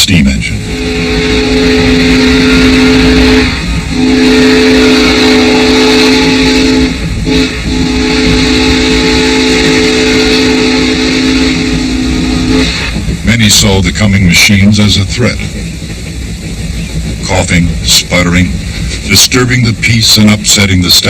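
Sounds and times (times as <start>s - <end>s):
rumble and hiss: 0.0s - 21.0s
steam whistle blasts: 0.6s - 12.9s.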